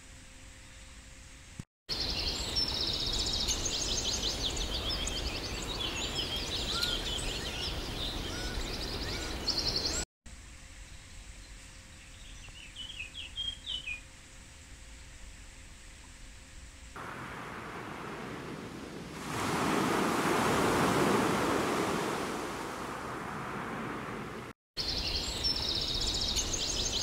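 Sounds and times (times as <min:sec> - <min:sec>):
background hiss: 0:00.0 - 0:27.0
birds singing: 0:01.9 - 0:10.0, 0:11.9 - 0:14.1, 0:24.8 - 0:27.0.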